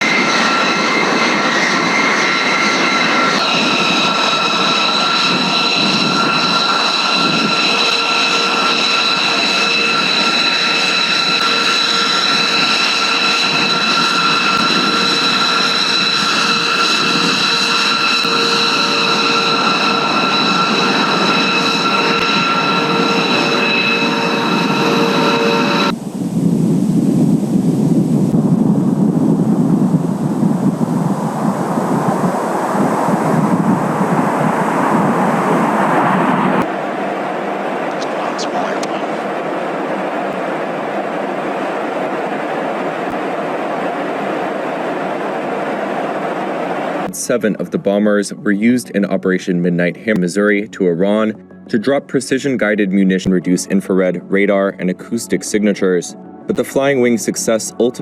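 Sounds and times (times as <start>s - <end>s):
jet engine rush and whine: 0.0s - 58.0s.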